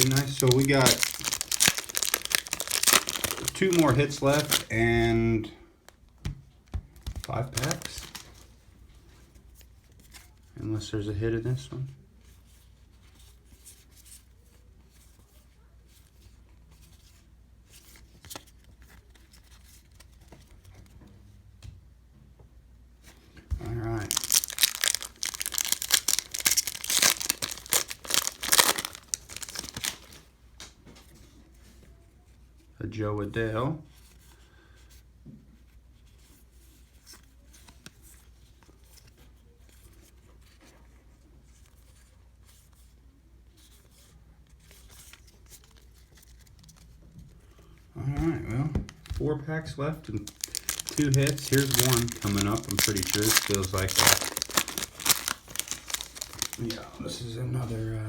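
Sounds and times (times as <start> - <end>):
cards rustling and sliding: 0.0 - 4.8, 6.9 - 8.5, 23.0 - 30.2, 50.0 - 56.8
foil wrapper crinkling: 0.0 - 5.0, 7.0 - 8.6, 23.6 - 30.3, 50.0 - 56.9.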